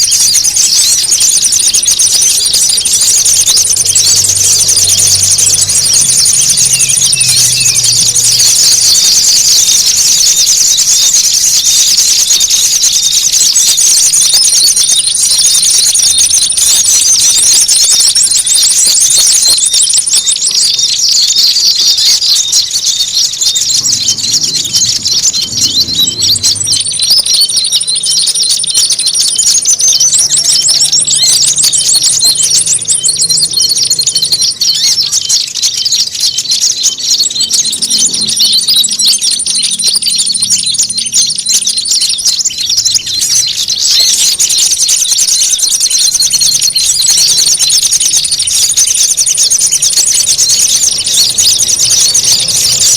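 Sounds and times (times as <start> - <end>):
songbirds chorus trilling: 0.0 - 52.9
very high steady whistle: 0.1 - 19.7.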